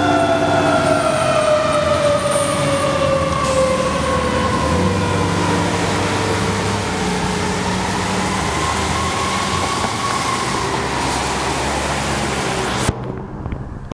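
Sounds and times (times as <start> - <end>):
fire truck siren wailing: 0.0 - 13.5
truck engine rumble: 0.0 - 14.0.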